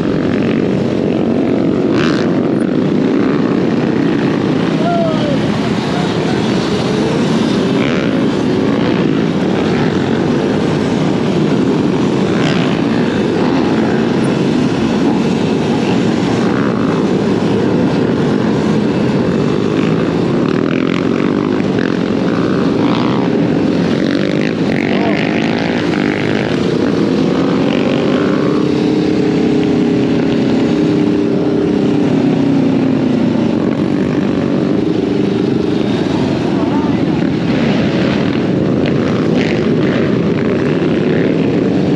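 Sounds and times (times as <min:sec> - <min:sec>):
motorbike engine: 0:00.0 - 0:41.9
wind rush on microphone: 0:00.0 - 0:41.9.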